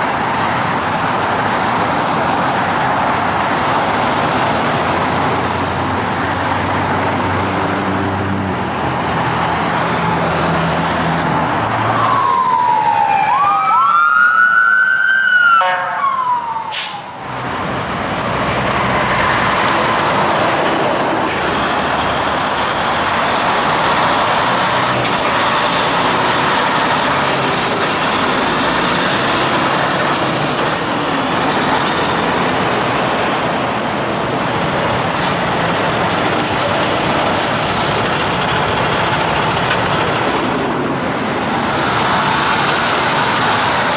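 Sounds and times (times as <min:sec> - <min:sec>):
highway traffic passing: 0:00.0 - 0:43.9
siren-like wail: 0:11.8 - 0:17.5.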